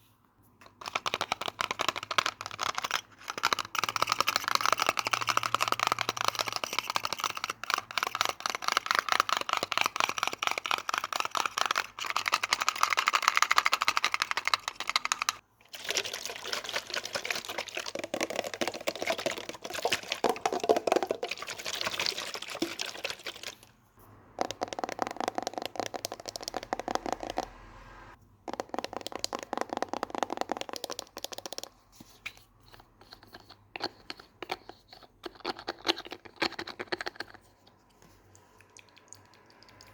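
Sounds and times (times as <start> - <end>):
rapid tapping and scratching: 0.8 - 15.4.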